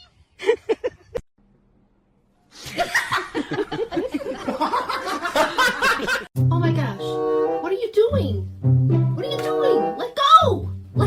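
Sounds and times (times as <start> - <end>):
person laughing: 0.4 - 1.2.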